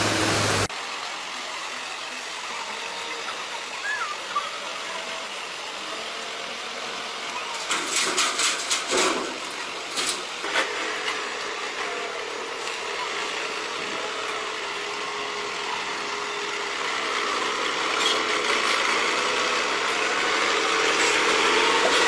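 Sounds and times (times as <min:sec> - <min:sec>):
machine whining over a hiss: 0:00.0 - 0:00.7.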